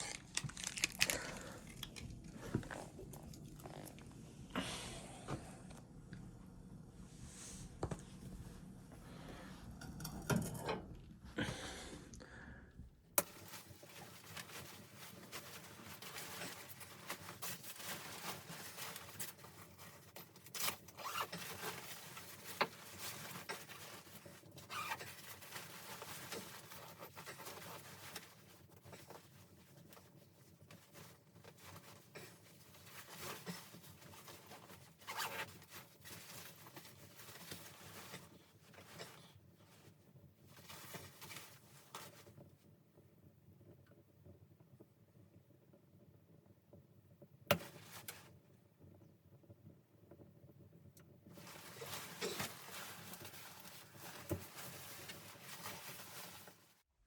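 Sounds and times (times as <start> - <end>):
soft rustling of gear: 0.0 - 4.3, 13.3 - 42.6, 51.3 - 56.9.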